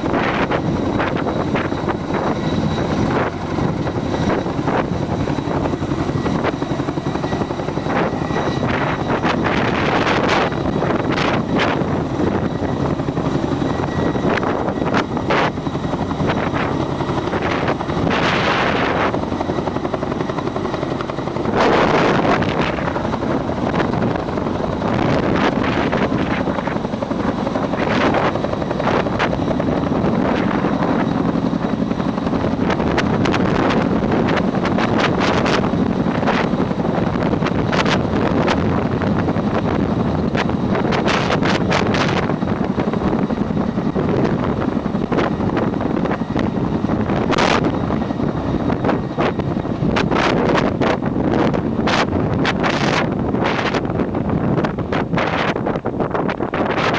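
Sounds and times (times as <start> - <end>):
helicopter rotor drone: 0.0 - 56.9
wind buffeting microphone: 0.0 - 56.9.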